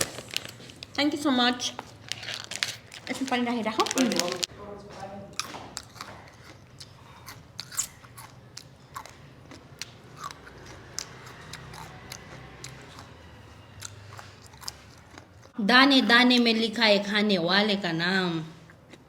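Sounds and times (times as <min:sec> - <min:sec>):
person biting and chewing fruit: 0:05.4 - 0:15.6.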